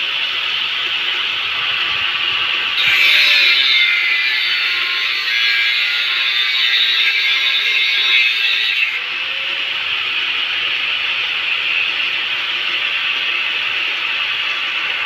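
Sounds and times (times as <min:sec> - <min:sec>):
angle grinder grinding steel: 0:02.8 - 0:12.0.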